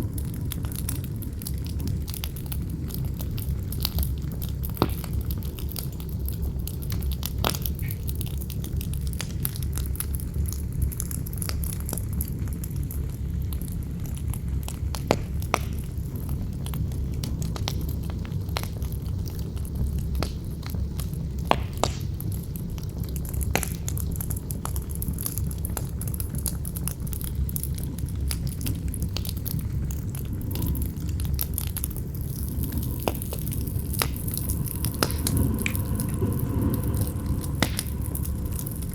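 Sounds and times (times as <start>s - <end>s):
campfire crackling and popping: 0.0s - 38.9s
deep wind rumble: 0.0s - 38.9s.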